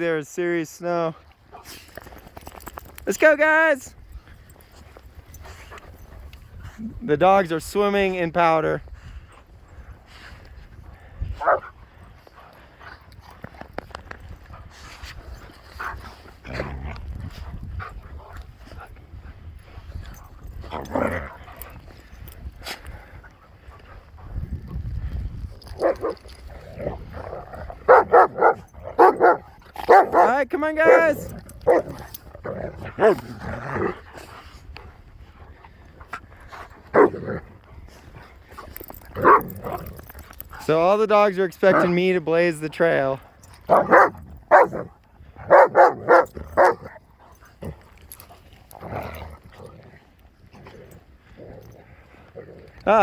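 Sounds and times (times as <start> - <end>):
dog barking: 27.9 - 30.3, 43.7 - 44.8, 45.5 - 46.8.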